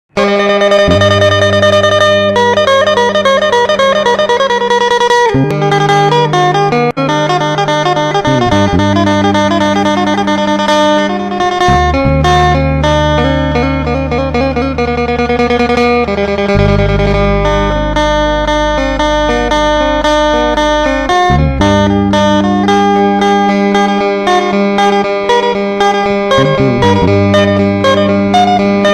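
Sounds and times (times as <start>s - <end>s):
plucked lute melody: 0.2s - 28.9s
low bass drone: 0.8s - 4.0s, 8.2s - 10.5s, 11.1s - 23.9s, 26.1s - 28.9s.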